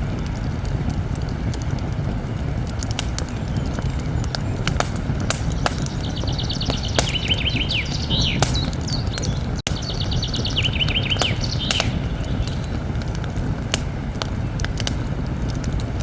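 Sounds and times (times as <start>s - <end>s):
campfire crackling and popping: 0.0s - 16.0s
songbird singing: 3.0s - 13.2s.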